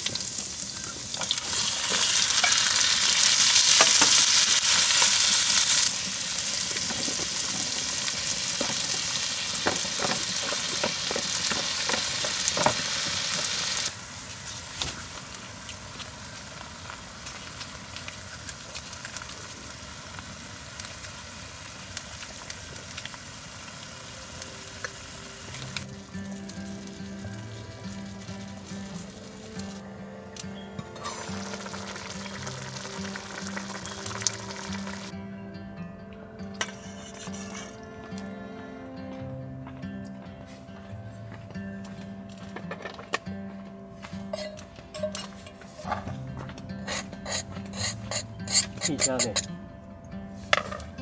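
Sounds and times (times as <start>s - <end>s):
food sizzling in a frying pan: 0.0s - 29.8s, 31.0s - 35.1s.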